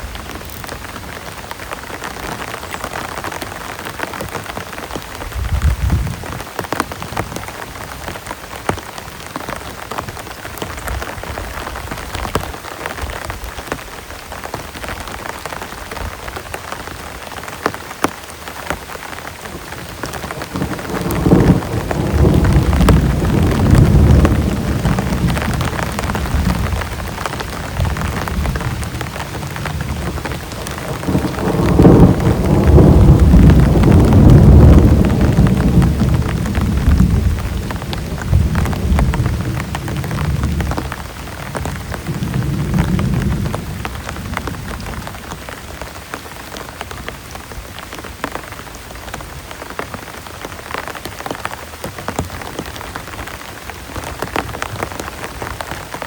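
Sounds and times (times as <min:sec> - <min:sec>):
heavy rain falling: 0:00.0 - 0:56.0
thunder rumbling: 0:19.4 - 0:45.8.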